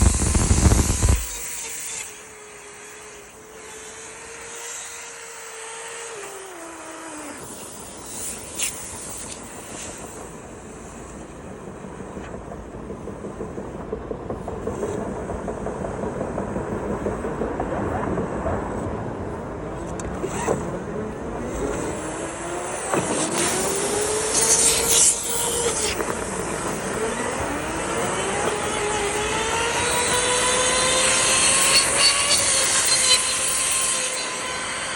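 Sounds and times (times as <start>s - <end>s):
loud bump: 0.0s - 1.8s
motor whine: 0.0s - 9.8s, 21.4s - 34.9s
rough fluttering rush: 0.0s - 34.9s.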